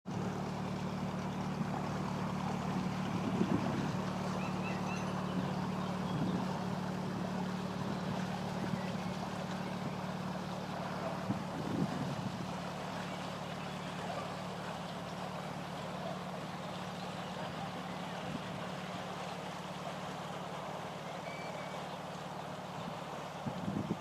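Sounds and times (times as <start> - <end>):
steady low hum: 0.1 - 21.8
wind on microphone: 3.1 - 4.0, 5.4 - 6.6, 11.2 - 12.6, 23.4 - 24.0
faint high bird chirps: 4.3 - 6.5, 21.0 - 22.0.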